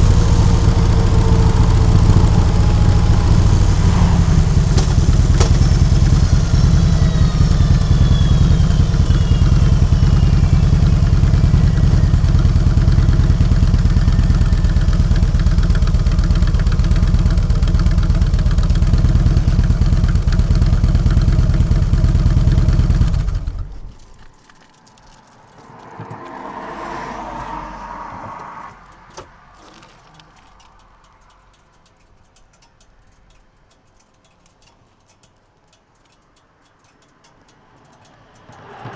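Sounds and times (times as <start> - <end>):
faint swelling sound: 0.0 - 15.6
motorcycle engine running: 0.0 - 24.1
click: 0.1 - 12.4, 28.8 - 38.9.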